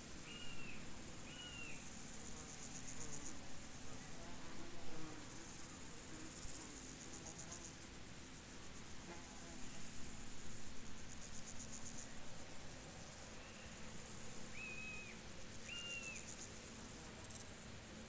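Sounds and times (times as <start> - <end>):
crickets chirping: 0.1 - 18.0
whistled bird notes: 14.6 - 16.2.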